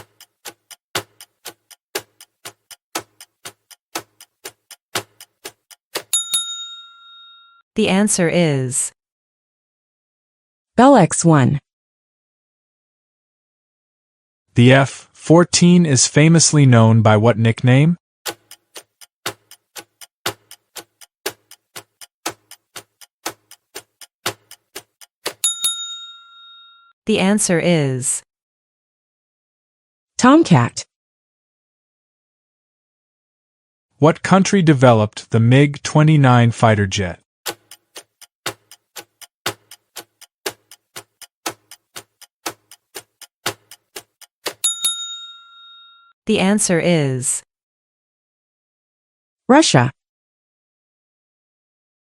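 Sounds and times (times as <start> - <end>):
countdown timer clock ticking: 0.0 - 6.7, 18.3 - 26.1, 37.5 - 45.3
bell ding: 6.1 - 7.6, 25.4 - 26.9, 44.6 - 46.1.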